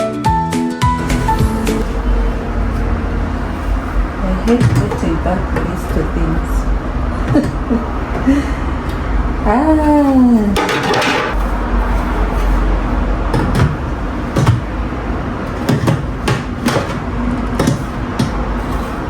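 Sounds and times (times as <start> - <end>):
knocks and clicks: 4.5 - 6.1, 10.1 - 11.5.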